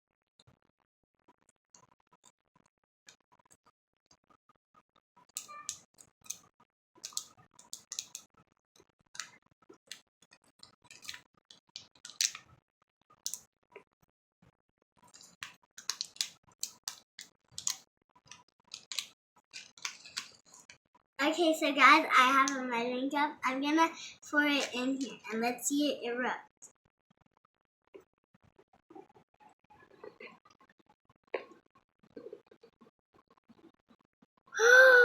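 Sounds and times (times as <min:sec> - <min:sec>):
toy kit parts clicking and rustling: 0:07.0 - 0:08.3, 0:10.9 - 0:12.4, 0:15.1 - 0:20.8.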